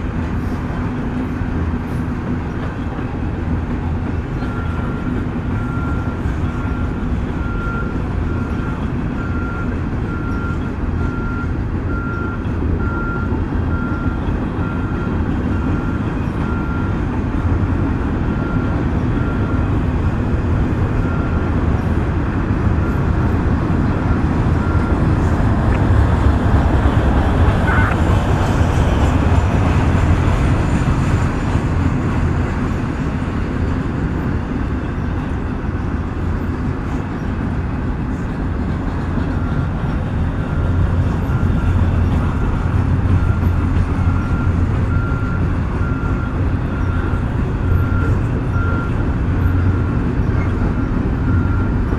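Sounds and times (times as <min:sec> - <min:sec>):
freight train rumbling past: 0:00.0 - 0:51.9.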